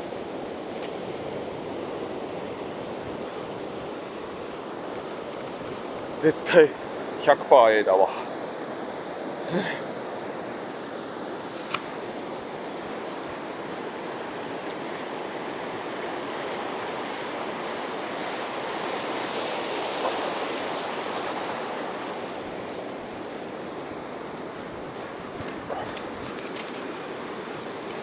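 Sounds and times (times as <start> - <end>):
surf breaking on beach: 0.0 - 28.0
short sharp click: 11.6 - 11.9.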